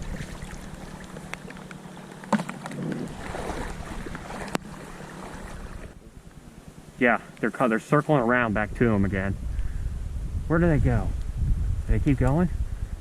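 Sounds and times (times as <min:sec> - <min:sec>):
wind buffeting microphone: 0:02.8 - 0:07.1, 0:08.2 - 0:13.0.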